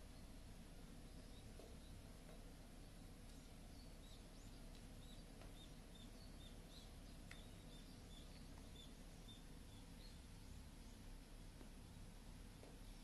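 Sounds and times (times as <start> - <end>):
low background hiss: 0.0 - 13.0
faint high bird chirps: 2.8 - 11.1.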